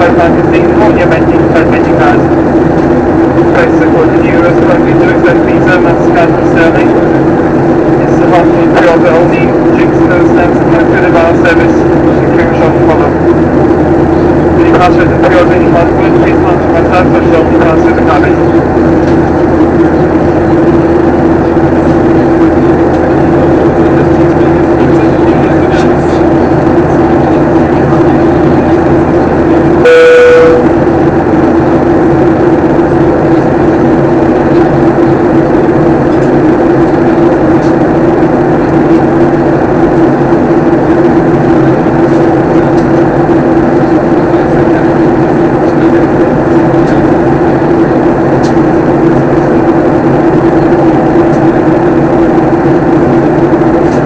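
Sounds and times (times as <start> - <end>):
airliner cabin drone: 0.0 - 54.0
short tone: 29.8 - 30.8.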